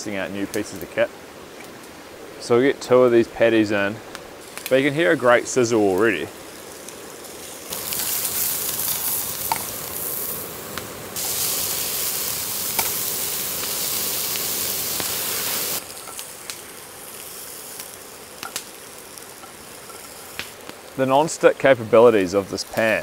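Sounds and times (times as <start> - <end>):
burger patties sizzling in a pan: 4.4 - 23.0.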